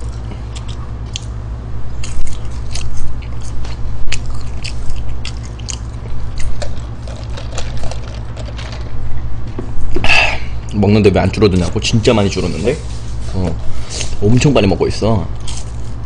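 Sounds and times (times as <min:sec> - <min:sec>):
crunchy chewing: 0:00.0 - 0:10.8, 0:15.3 - 0:16.0
steady low hum: 0:00.0 - 0:16.0.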